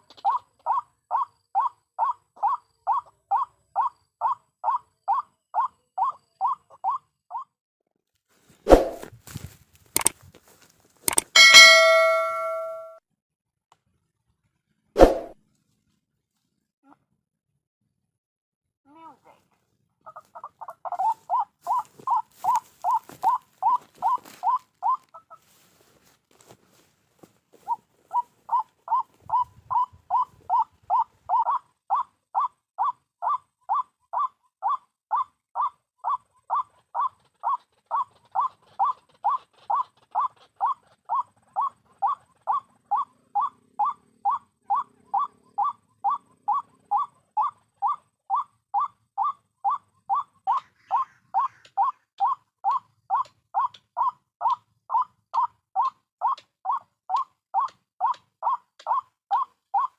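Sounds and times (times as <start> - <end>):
waterhen calling: 49.7 - 59.9.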